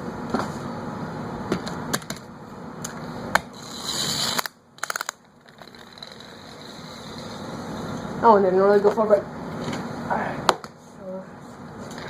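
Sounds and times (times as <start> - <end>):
spring motor whirring: 3.6 - 8.0
plastic toy car clicks: 4.2 - 6.2.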